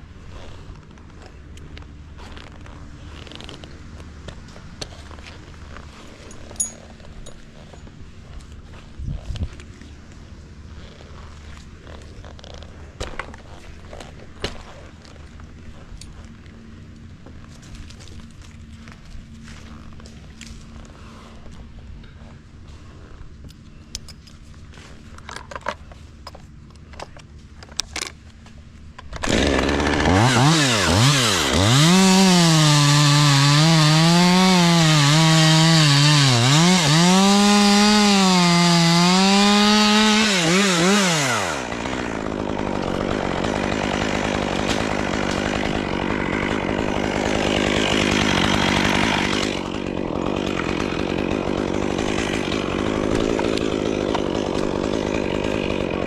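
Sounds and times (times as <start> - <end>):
chainsaw cutting wood: 27.9 - 56.0.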